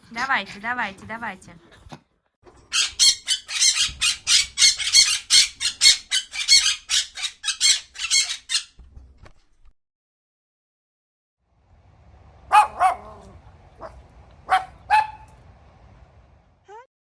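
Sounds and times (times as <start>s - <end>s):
bird squawking harshly: 2.8s - 8.7s.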